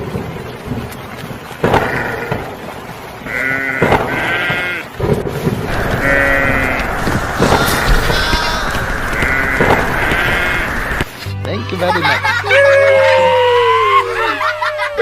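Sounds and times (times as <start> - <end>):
sheep or goats bleating: 3.2 - 5.0, 5.7 - 11.2
steady low rumble: 5.2 - 11.3.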